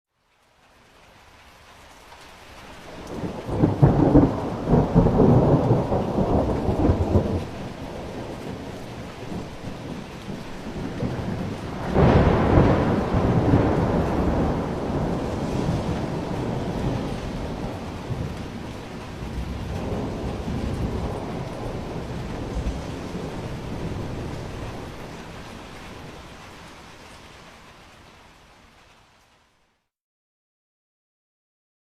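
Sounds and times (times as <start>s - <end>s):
steady rain: 0.1s - 29.9s
thunder rumbling: 2.9s - 26.9s.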